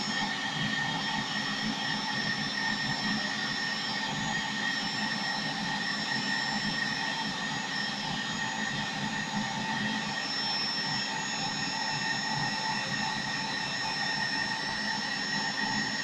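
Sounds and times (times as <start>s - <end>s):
hair dryer running: 0.0s - 0.9s.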